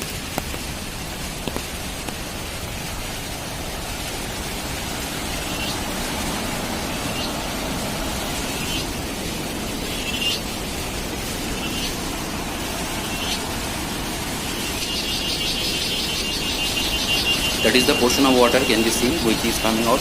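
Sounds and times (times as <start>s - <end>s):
heavy rain on a car: 0.0s - 20.0s
tyre and road noise: 0.0s - 20.0s
rapid high pulsing sound: 3.2s - 20.0s.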